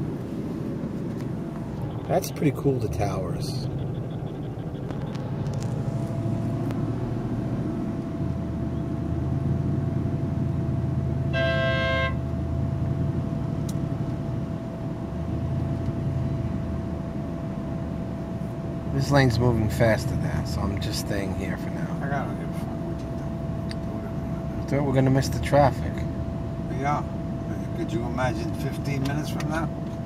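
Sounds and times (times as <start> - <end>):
car engine and road rumble: 0.0 - 30.0
car horn honk: 11.2 - 12.3.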